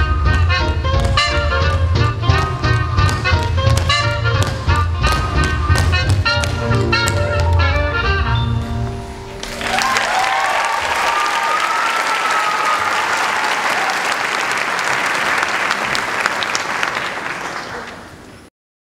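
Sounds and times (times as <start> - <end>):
high rising cheers: 9.4 - 14.8
audience clapping and cheering: 9.4 - 18.5.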